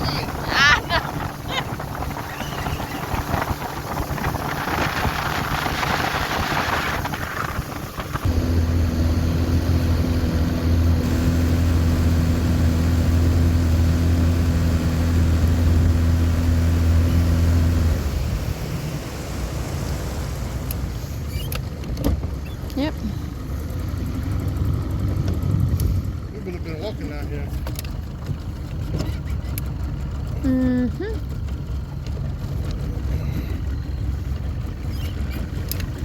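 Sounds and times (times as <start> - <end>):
wind on microphone: 0.0 - 20.9
outboard motor running: 0.0 - 36.0.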